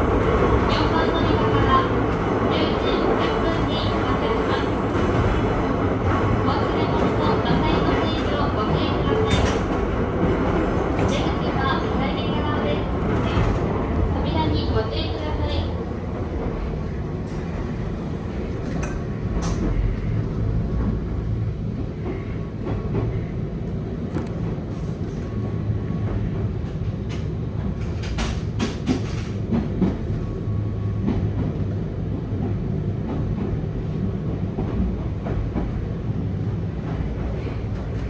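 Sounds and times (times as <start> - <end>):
train wheels rumbling on track: 0.0 - 38.0.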